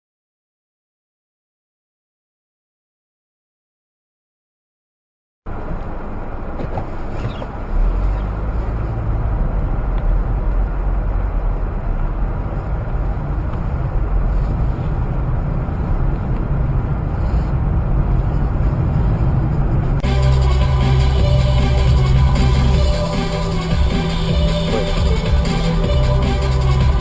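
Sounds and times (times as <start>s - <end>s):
vehicle road and engine rumble: 5.5s - 27.0s.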